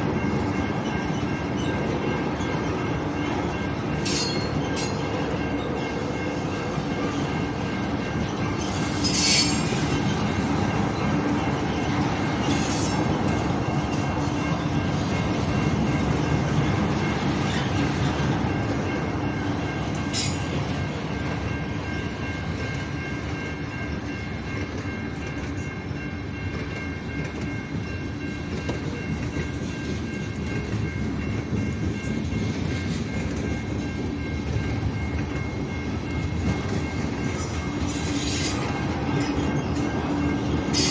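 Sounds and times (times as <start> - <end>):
train wheel squeal: 3.6 - 18.6, 19.3 - 20.9, 36.4 - 40.9.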